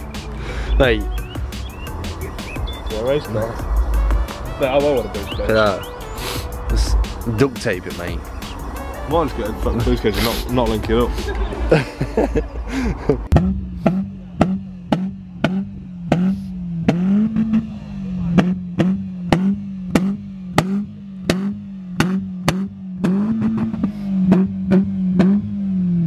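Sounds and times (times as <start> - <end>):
car engine at steady revs: 5.2 - 26.0.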